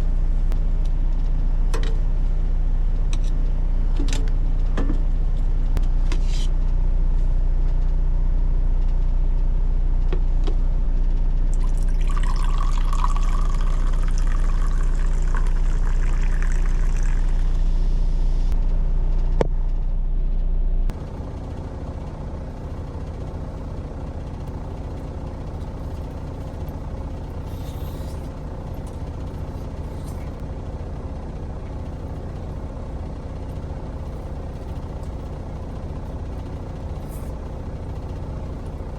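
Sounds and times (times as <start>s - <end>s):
diesel truck engine idling: 20.9s - 38.9s.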